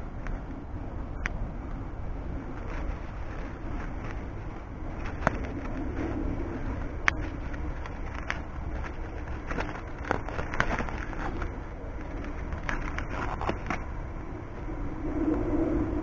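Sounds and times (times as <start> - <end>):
wood fire crackling and popping: 2.4 - 13.9.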